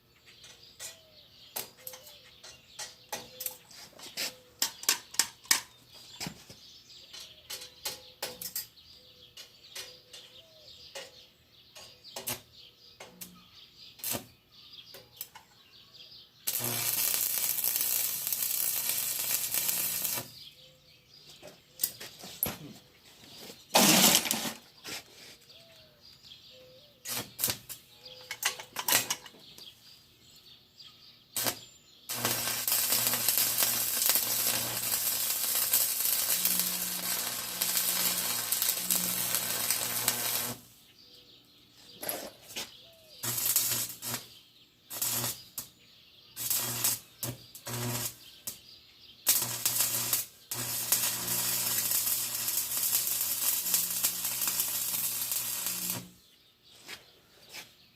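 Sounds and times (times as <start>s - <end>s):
welding arc crackling and sizzling: 14.0s - 14.3s, 16.5s - 20.4s, 27.1s - 27.8s, 31.4s - 40.7s, 43.2s - 44.3s, 44.9s - 45.7s, 46.4s - 48.6s, 49.2s - 56.2s
low welding hum: 16.5s - 20.4s, 31.4s - 40.8s, 43.2s - 44.3s, 44.9s - 45.7s, 46.4s - 48.6s, 49.2s - 56.2s.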